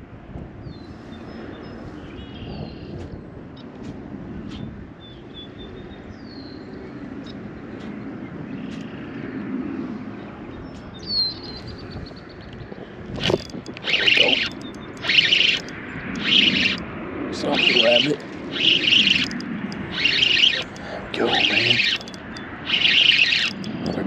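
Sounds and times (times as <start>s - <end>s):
distant traffic rumble: 0.0s - 24.0s
bird chirps: 13.2s - 16.8s, 17.4s - 24.0s
loud rushing bursts: 17.4s - 23.9s.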